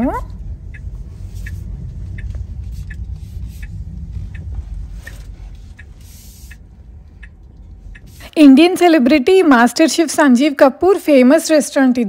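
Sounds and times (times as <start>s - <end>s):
turn signal ticking: 0.0s - 9.3s
car rumbling on the move: 0.0s - 10.0s.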